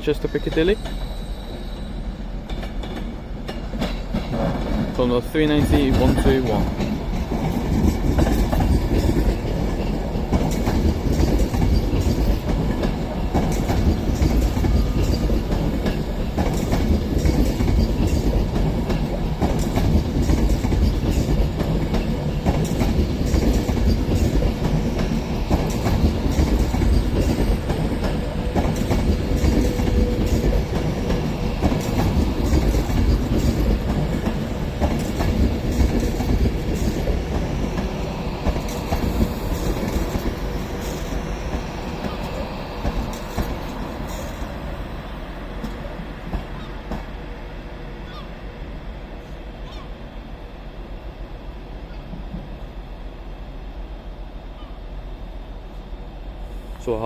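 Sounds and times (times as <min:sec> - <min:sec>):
low train rumble: 0:00.0 - 0:57.0
train wheels clattering: 0:00.2 - 0:44.8.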